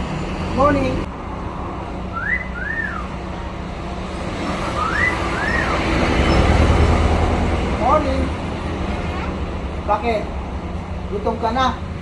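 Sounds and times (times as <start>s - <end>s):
traffic rumble: 0.0s - 12.0s
myna bird whistling: 2.1s - 3.2s, 4.4s - 6.6s.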